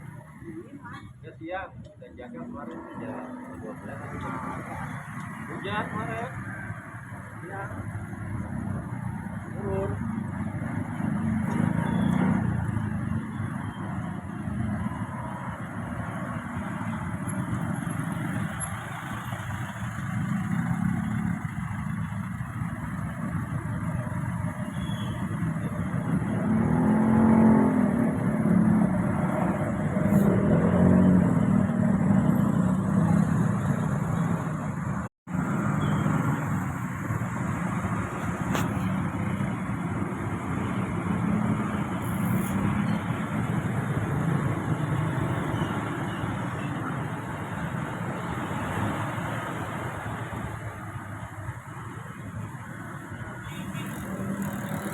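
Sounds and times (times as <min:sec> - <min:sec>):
road and wind noise: 0:00.0 - 0:54.9.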